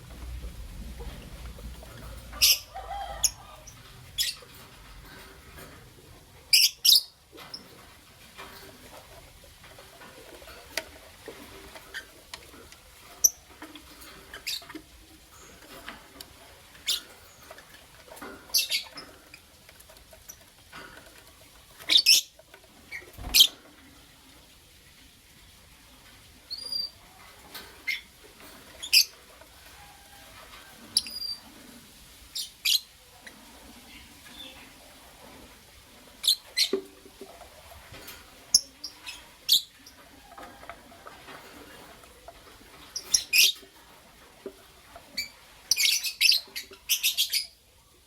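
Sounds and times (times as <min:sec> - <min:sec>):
lovebirds chirping: 0:00.4 - 0:04.6, 0:06.5 - 0:07.8, 0:16.7 - 0:19.6, 0:21.8 - 0:23.6.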